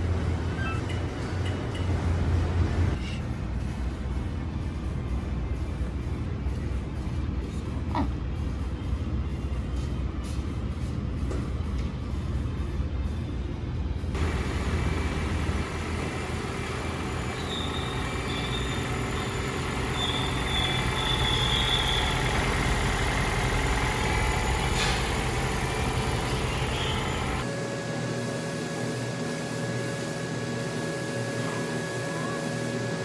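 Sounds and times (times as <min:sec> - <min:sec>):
engine rumbling: 0:00.0 - 0:09.6, 0:14.1 - 0:27.5
faint high squeal: 0:17.3 - 0:22.6.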